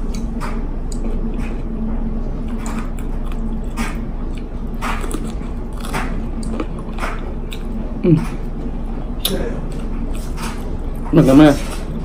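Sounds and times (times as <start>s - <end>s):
steady low hum: 0.0s - 12.0s
chewing crunchy raw pepper: 2.4s - 8.5s.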